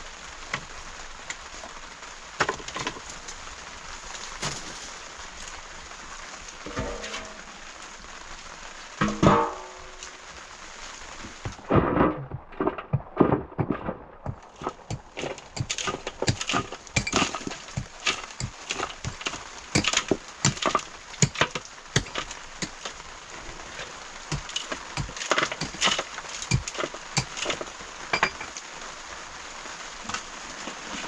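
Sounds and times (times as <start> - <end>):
steady hiss: 0.0 - 31.0
irregular clicks and knocks: 11.3 - 23.0, 24.3 - 28.6.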